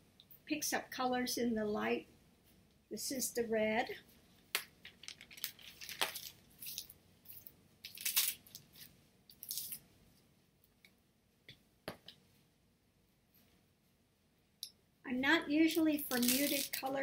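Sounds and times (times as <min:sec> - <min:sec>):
art pieces clicking and rustling: 0:04.6 - 0:09.8.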